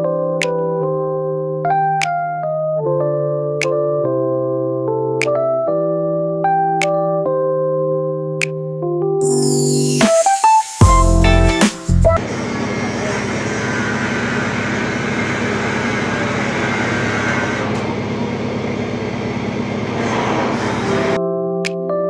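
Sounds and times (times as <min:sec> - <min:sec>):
angle grinder cutting metal: 0:12.2 - 0:17.9, 0:19.8 - 0:21.2.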